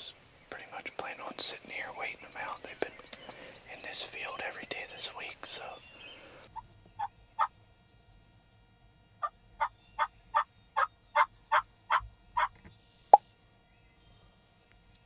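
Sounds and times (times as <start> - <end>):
turkey yelping: 9.6 - 12.6.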